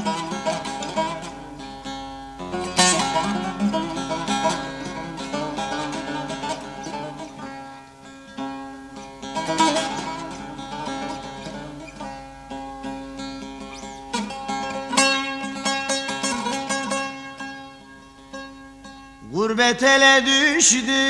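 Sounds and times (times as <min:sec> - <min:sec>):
plucked string instrument folk music: 0:00.0 - 0:21.0
person singing: 0:03.0 - 0:07.5, 0:19.2 - 0:21.0.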